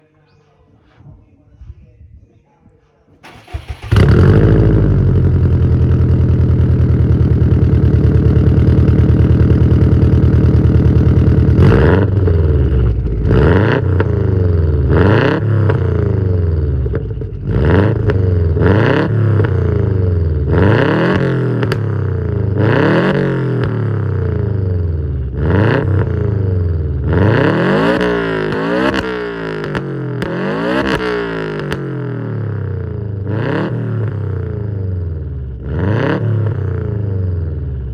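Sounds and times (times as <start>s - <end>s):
car engine idling and revving: 3.2s - 37.9s.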